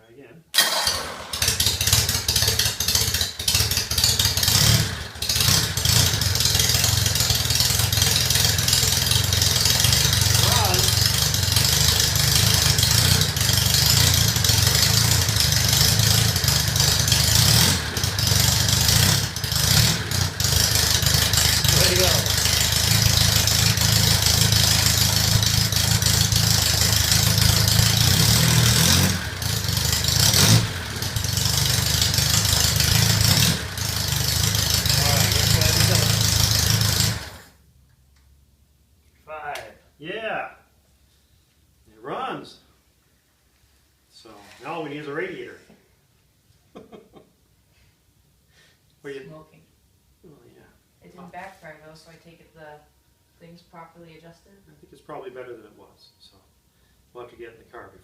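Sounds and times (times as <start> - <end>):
engine cranking and starting: 0.6 - 37.5.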